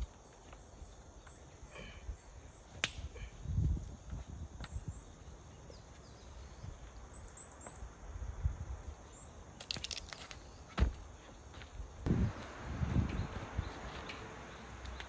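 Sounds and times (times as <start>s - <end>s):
small bird chirping: 12.6s - 15.0s.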